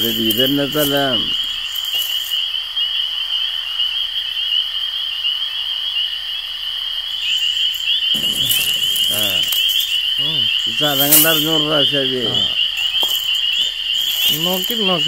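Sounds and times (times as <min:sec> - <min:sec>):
rustle: 0:00.0 - 0:03.1, 0:07.2 - 0:15.0
frogs calling: 0:00.0 - 0:15.0
insects trilling: 0:00.0 - 0:15.0.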